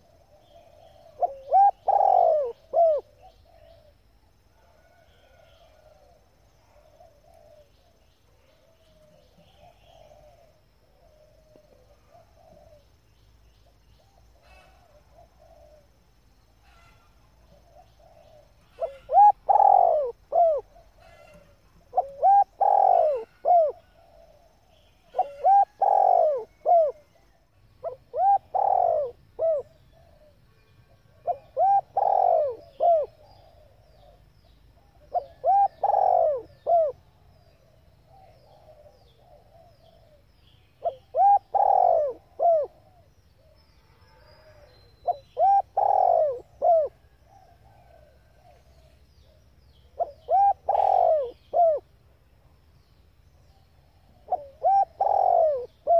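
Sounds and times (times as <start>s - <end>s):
dove cooing: 0.0s - 4.0s, 4.6s - 12.9s, 14.0s - 16.0s, 16.7s - 51.9s, 53.9s - 55.9s.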